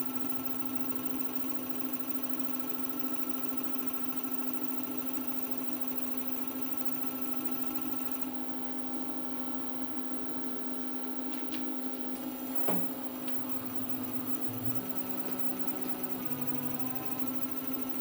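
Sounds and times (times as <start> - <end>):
machine electrical hum: 0.0 - 18.0.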